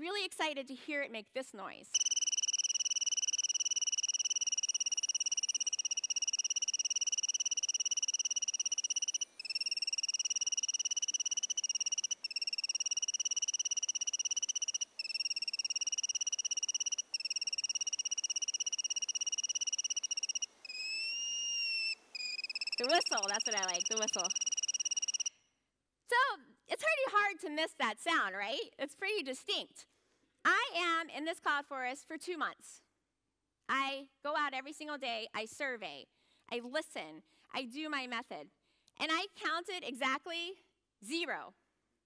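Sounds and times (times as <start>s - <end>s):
bird high whistle call: 2.0s - 25.3s.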